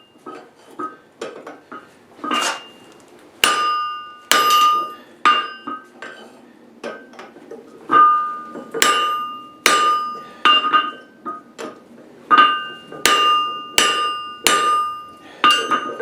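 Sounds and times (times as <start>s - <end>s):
hammer striking steel on anvil: 1.7s - 2.8s, 3.4s - 6.2s, 7.9s - 16.0s.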